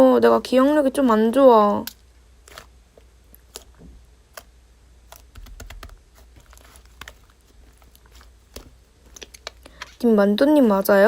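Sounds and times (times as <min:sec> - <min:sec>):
slime clicking and crackling: 0:01.9 - 0:09.6.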